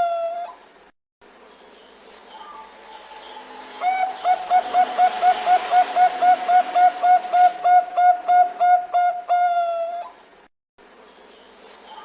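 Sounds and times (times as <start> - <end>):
dove cooing: 2.4 - 10.2.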